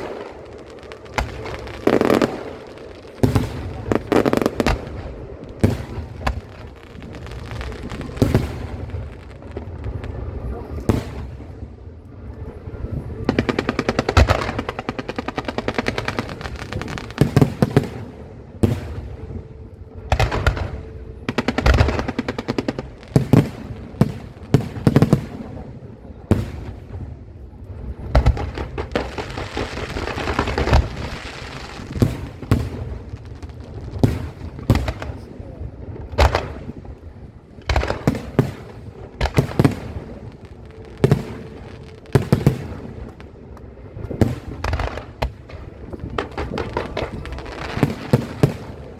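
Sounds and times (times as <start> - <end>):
fireworks crackling: 0.0 - 48.9
firework shells booming: 28.0 - 35.3, 37.6 - 48.9.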